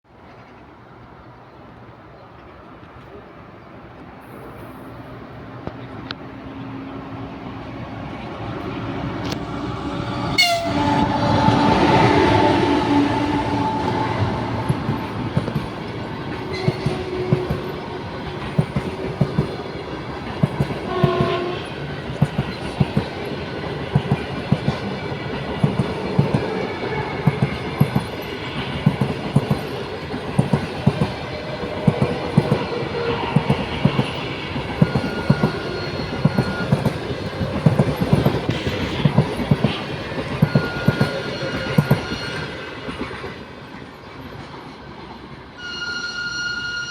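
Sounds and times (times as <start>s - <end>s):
train horn: 10.1s - 15.1s, 20.8s - 21.8s, 45.6s - 46.9s.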